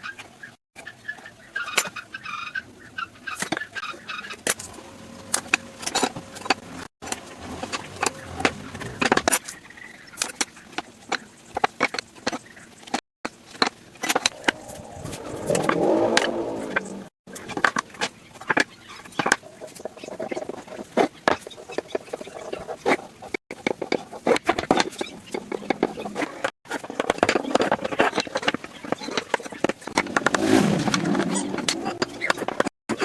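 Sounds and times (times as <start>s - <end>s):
loud rushing noise: 14.3s - 17.1s.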